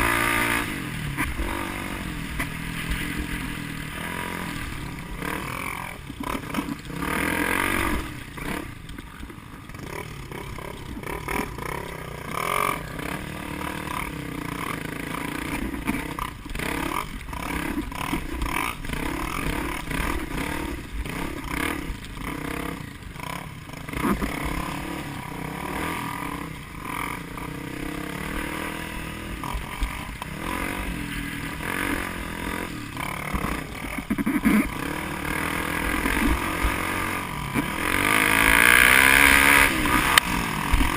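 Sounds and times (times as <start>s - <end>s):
noise: 0.0s - 40.9s
vehicle engines running: 0.0s - 40.9s.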